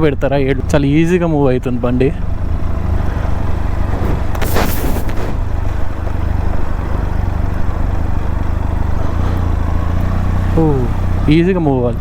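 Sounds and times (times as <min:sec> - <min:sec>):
motorcycle engine running: 0:00.0 - 0:12.0
brief rush of noise: 0:03.9 - 0:05.6.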